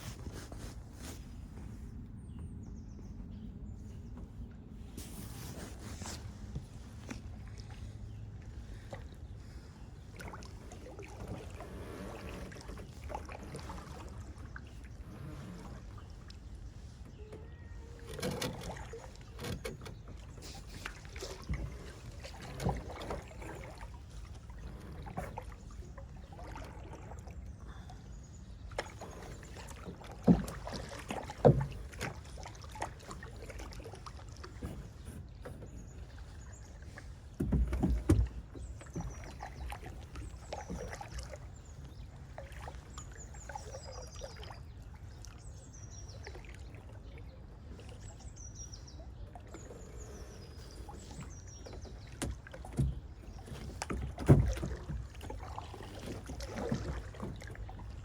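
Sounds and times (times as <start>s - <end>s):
paddle splashing water: 0.0s - 2.0s, 2.7s - 58.0s
faint high bird chirps: 16.8s - 18.4s.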